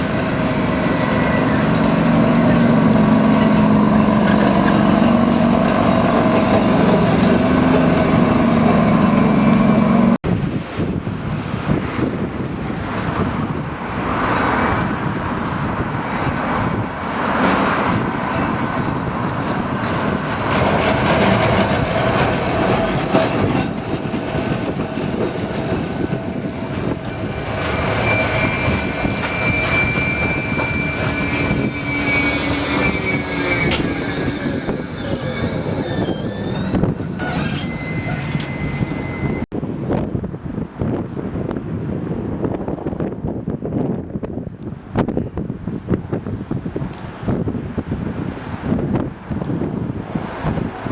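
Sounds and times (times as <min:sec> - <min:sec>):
steel wheel squeal: 0:00.0 - 0:10.2, 0:26.0 - 0:39.5
tram wheel and motor noise: 0:00.0 - 0:50.9.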